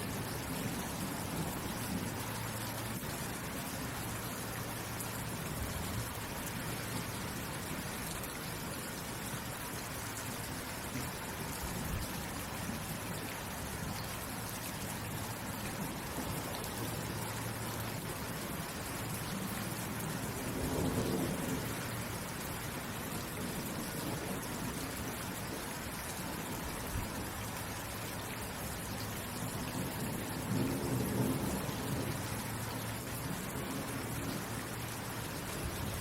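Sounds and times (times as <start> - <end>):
steady rain falling: 0.0 - 36.0
thunder rumbling: 29.8 - 32.6.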